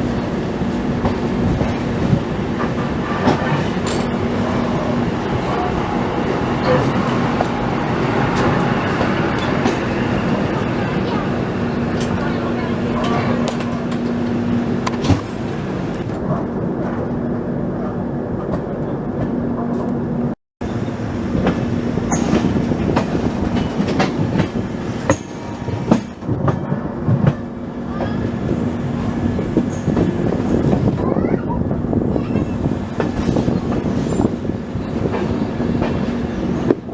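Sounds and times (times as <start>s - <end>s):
train rumble: 0.0s - 36.9s
train wheels clacking over rail joints: 21.4s - 28.2s.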